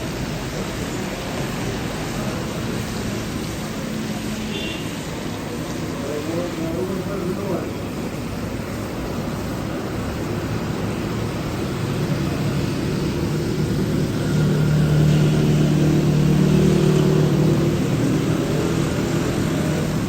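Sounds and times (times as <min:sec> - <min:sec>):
background noise: 0:00.0 - 0:20.0
vehicle engine running: 0:08.2 - 0:20.0.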